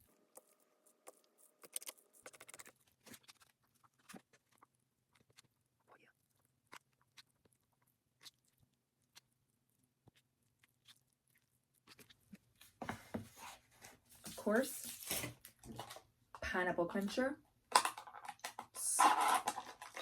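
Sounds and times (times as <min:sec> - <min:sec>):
utensils clicking on plastic containers: 0:17.7 - 0:20.0.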